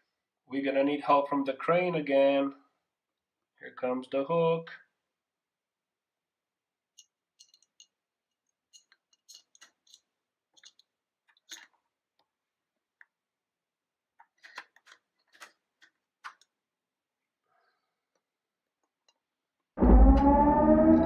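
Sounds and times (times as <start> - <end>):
plastic toy pieces clicking: 8.7 - 11.8.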